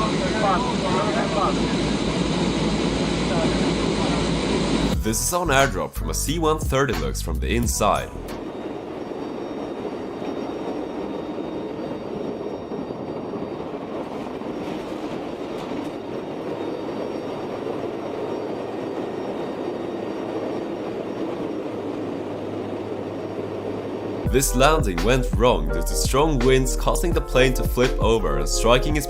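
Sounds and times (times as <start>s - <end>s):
turboprop engines droning: 0.0s - 29.0s.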